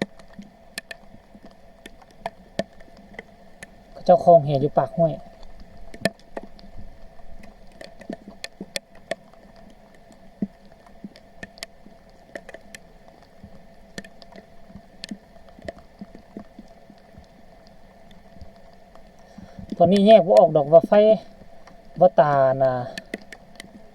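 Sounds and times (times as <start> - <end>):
sharp clicks: 0.0 - 3.8, 10.4 - 13.3, 13.9 - 16.5
faint hum: 0.0 - 23.9.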